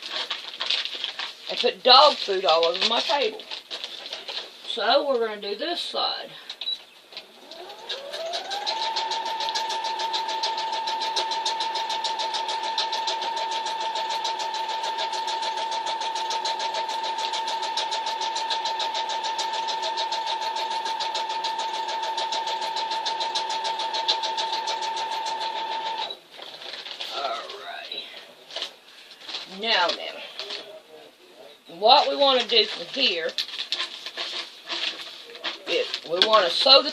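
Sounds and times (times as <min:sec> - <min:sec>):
electric sewing machine stitching: 0:07.4 - 0:26.1, 0:35.4 - 0:36.9.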